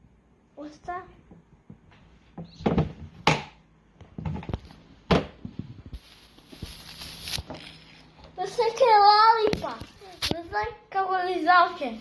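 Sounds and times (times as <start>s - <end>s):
knocks and thumps on a tabletop: 1.2s - 6.0s.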